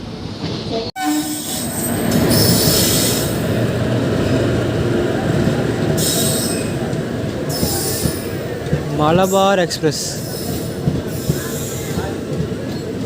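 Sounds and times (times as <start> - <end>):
train wheels rumbling on rails: 0.0 - 13.0
high-pitched wheel squeal: 1.0 - 3.3.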